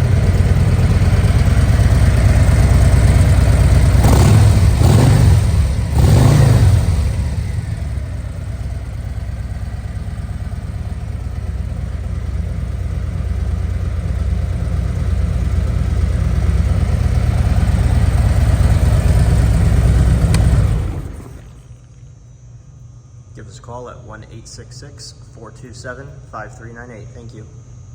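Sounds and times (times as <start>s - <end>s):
motorcycle engine idling: 0.0s - 21.8s.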